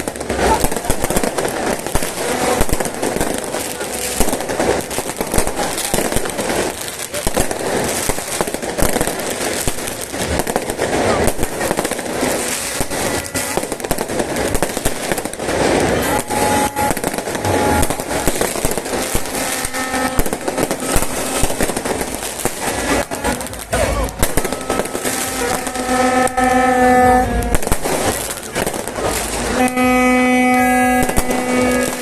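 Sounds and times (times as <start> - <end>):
crowd voices: 0.0 - 32.0
fireworks bursting and crackling: 0.0 - 32.0.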